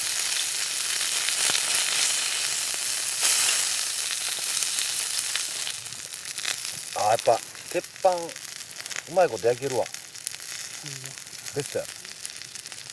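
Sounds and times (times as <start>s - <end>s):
steak sizzling on a griddle: 0.0s - 12.9s.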